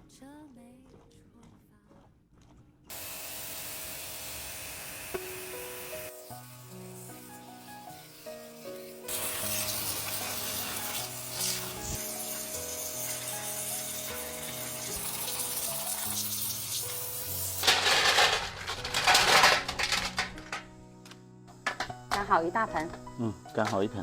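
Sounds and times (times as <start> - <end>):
background music: 5.2 - 24.0.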